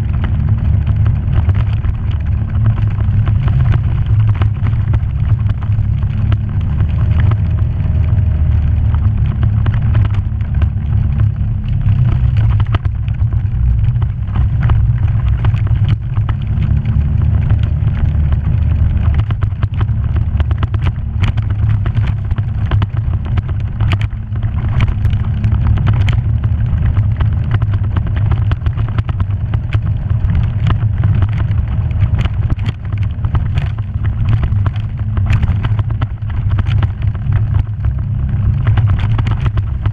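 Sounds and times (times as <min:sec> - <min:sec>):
vehicle engine rumble: 0:00.0 - 0:39.9
vehicle knocks and rattles: 0:00.0 - 0:39.9.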